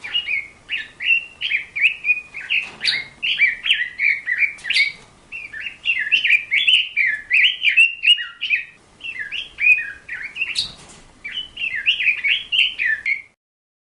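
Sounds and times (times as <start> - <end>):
bird chirping: 0.0 - 13.4.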